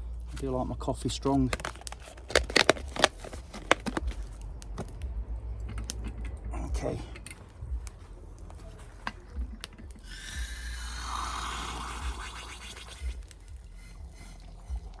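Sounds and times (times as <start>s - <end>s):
hot water pouring into coffee press: 9.8s - 15.0s.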